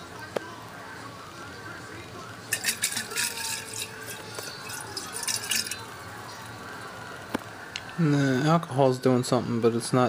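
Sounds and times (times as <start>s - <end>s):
liquid sloshing in glass: 2.5s - 5.9s.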